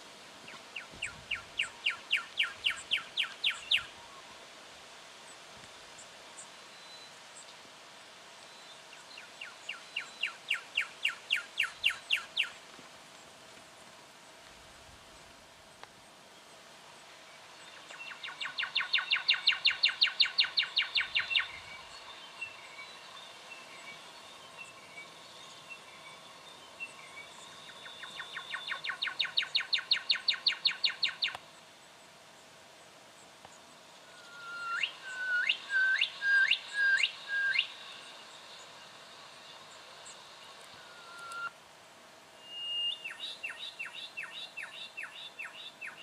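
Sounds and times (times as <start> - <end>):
hawk calls sweeping upward: 34.1 - 37.8, 40.7 - 41.5.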